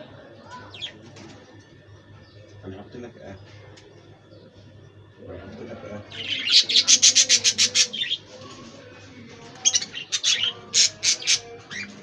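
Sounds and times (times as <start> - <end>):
budgerigars chirping: 6.1 - 8.2, 9.6 - 11.9.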